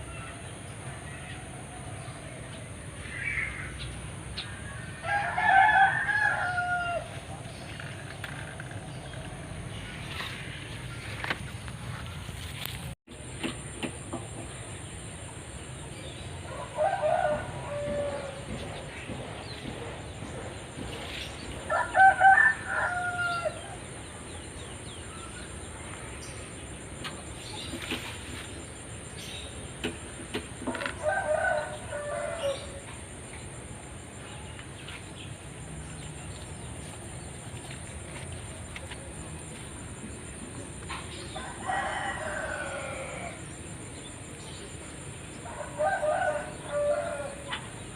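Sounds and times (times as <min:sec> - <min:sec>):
rooster crowing: 0:04.6 - 0:07.3, 0:16.5 - 0:18.5, 0:21.7 - 0:23.8, 0:30.7 - 0:32.8, 0:41.3 - 0:43.5, 0:45.4 - 0:47.6.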